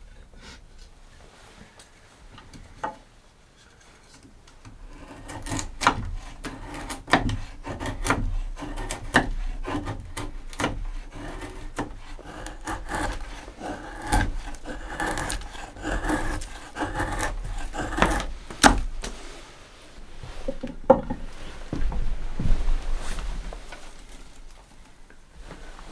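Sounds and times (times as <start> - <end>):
wood scraping: 4.7 - 24.7
wooden knocks and clatter: 20.3 - 22.7.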